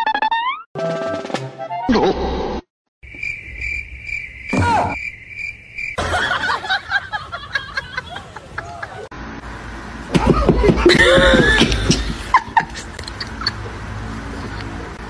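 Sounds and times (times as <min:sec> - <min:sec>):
cricket chirping: 0:03.0 - 0:06.6.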